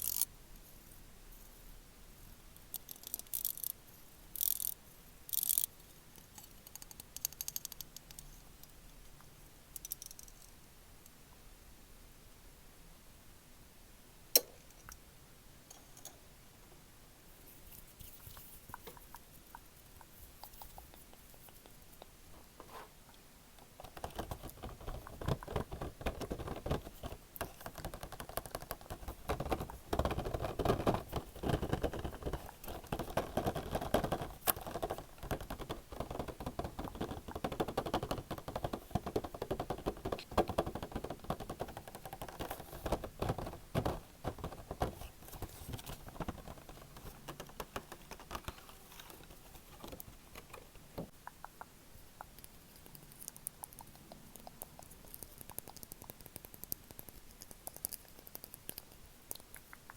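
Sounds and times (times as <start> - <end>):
rapid tapping and scratching: 23.6 - 59.9.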